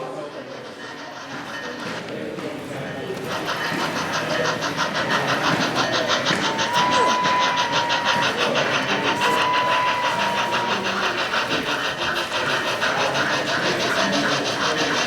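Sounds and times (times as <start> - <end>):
model steam locomotive chuffing: 0.0 - 15.0
locomotive whistle: 4.9 - 15.0.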